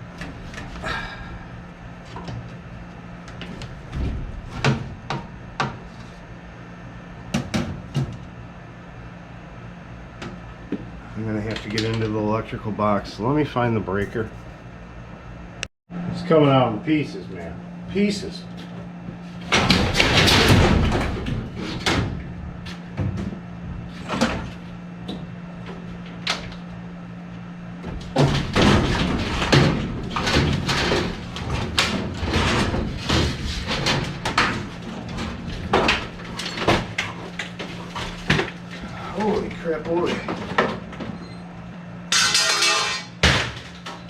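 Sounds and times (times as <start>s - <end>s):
steady low hum: 0.0s - 44.0s
sheet metal knocks and clanks: 27.8s - 38.6s.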